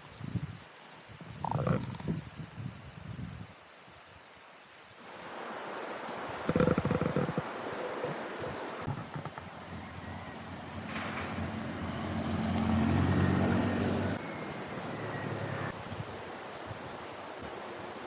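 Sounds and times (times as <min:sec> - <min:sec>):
wind noise: 0:00.0 - 0:04.1
vehicle engine hum: 0:09.0 - 0:15.8.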